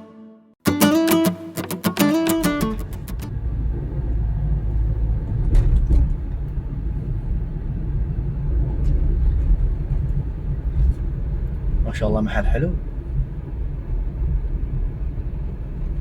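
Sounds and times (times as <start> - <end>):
guitar music: 0.0 - 3.4
car cabin rumble: 2.8 - 16.0.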